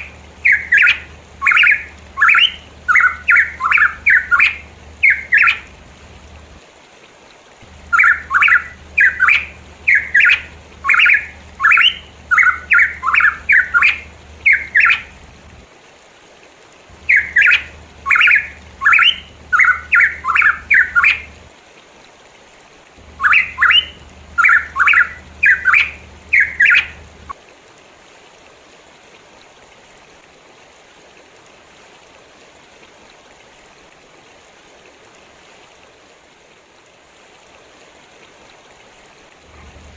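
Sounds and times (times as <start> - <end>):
bird calling harsh repeated notes: 0.0 - 5.8, 7.7 - 15.3, 17.0 - 21.4, 23.0 - 27.3
low hum: 0.0 - 6.6, 7.6 - 15.6, 23.0 - 27.3, 37.4 - 39.9
faint hiss: 0.0 - 39.9.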